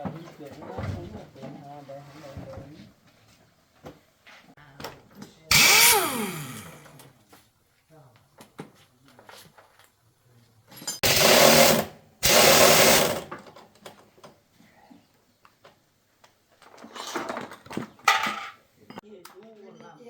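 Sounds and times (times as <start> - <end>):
small electric power tool running: 5.5 - 7.0, 11.0 - 13.2.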